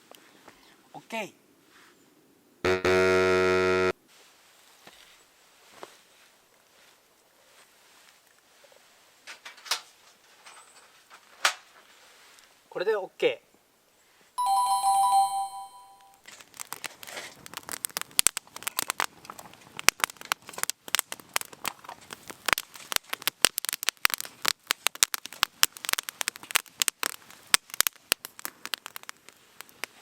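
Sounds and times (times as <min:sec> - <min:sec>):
two-note chime: 0:14.4 - 0:16.2
campfire crackling and popping: 0:16.2 - 0:30.0.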